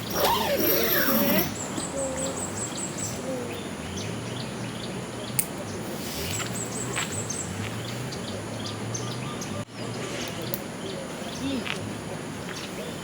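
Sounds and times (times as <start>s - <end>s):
bird chirping: 0.0s - 9.9s.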